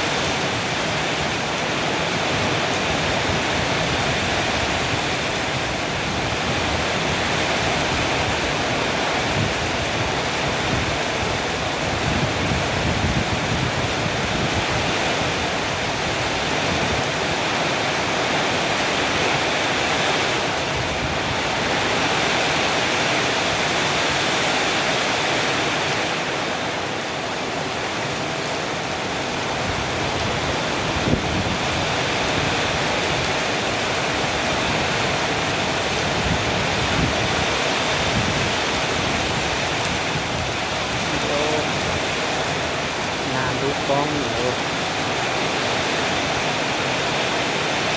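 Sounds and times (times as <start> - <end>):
strong wind blowing: 0.0 - 47.9
wind buffeting microphone: 2.3 - 17.5, 29.2 - 44.4.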